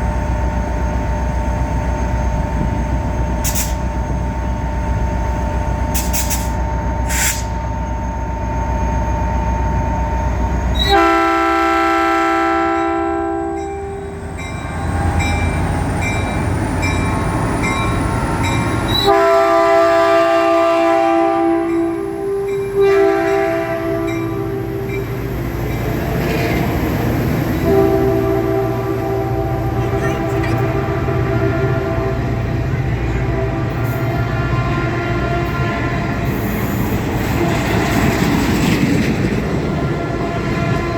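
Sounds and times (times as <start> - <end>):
train rumbling: 0.0 - 40.9
train horn blasts: 10.8 - 14.2, 18.9 - 26.7, 27.5 - 38.1, 39.6 - 40.9.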